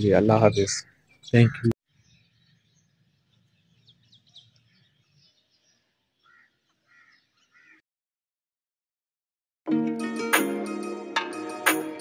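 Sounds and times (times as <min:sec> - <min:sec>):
faint birds chirping: 0:00.0 - 0:07.8.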